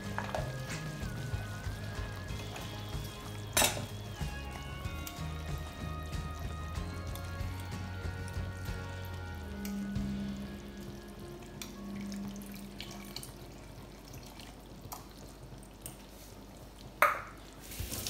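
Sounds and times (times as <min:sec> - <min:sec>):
liquid trickling and dripping: 0:10.7 - 0:18.0.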